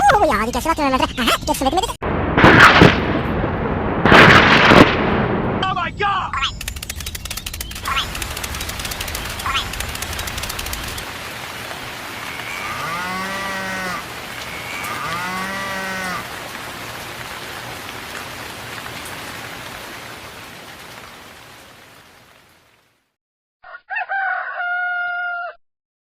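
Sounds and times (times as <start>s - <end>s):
cow mooing: 12.1s - 16.3s.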